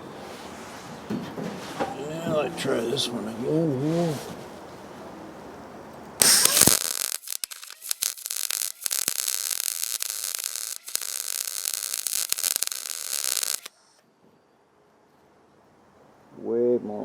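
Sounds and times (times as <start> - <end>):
welder arc crackling: 6.2 - 14.0.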